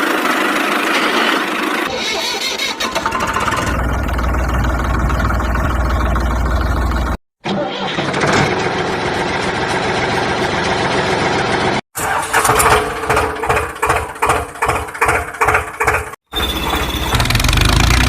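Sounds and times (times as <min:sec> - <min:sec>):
engine chugging unevenly: 0:00.0 - 0:07.2.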